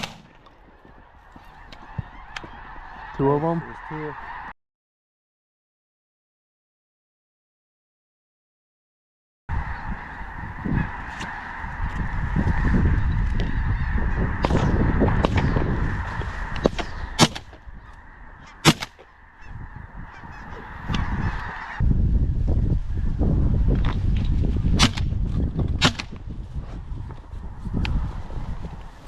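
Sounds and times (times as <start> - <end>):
sharp cracks: 0.0 - 0.4, 16.4 - 17.7, 18.4 - 19.1, 24.8 - 25.1, 25.8 - 26.2
geese honking: 0.6 - 4.5, 9.5 - 21.8.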